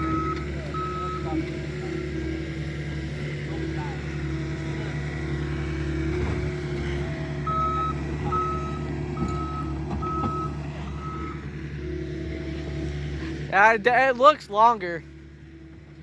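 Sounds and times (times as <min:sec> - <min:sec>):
reversing alarm beeps: 0:00.0 - 0:01.4, 0:07.5 - 0:11.4.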